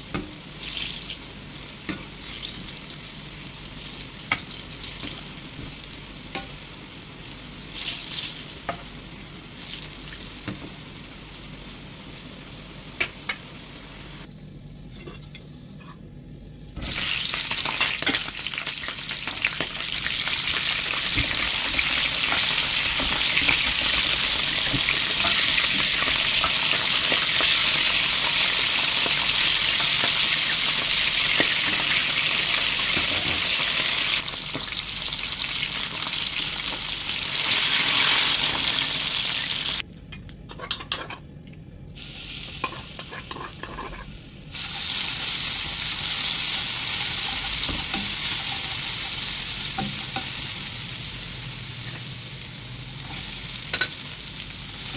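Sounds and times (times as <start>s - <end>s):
vegetables sizzling in hot oil: 0.0s - 14.3s, 16.8s - 39.8s, 44.4s - 54.9s
spatula scraping a wok: 42.6s - 45.0s, 46.8s - 50.4s.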